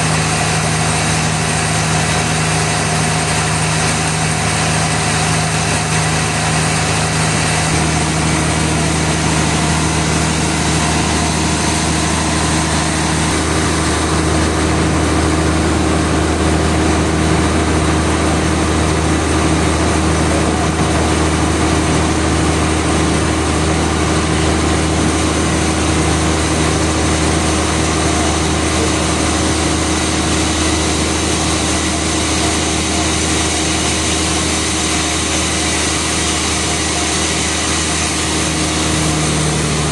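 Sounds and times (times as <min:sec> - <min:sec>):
sawmill machinery hum and whine: 0:00.0 - 0:39.9.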